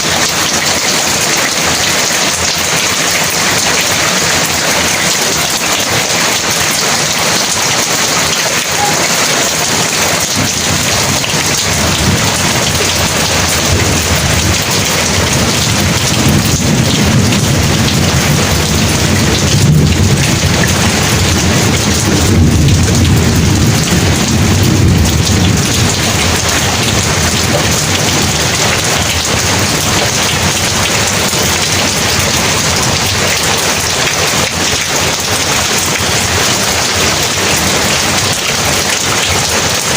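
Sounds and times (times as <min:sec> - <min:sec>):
heavy rain falling: 0:00.0 - 0:39.9
low rumble of thunder: 0:09.6 - 0:33.3.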